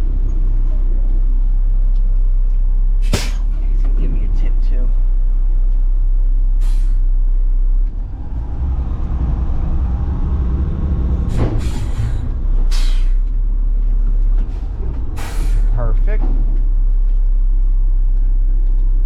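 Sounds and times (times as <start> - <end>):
diesel truck engine running: 0.0 - 19.0
air brake hisses: 6.6 - 7.0, 11.3 - 13.2, 15.2 - 15.8.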